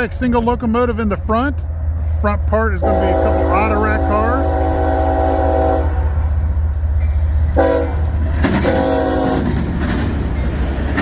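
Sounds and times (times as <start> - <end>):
train rolling noise: 0.0 - 11.0
locomotive horn blasts: 2.8 - 6.1, 7.6 - 9.5.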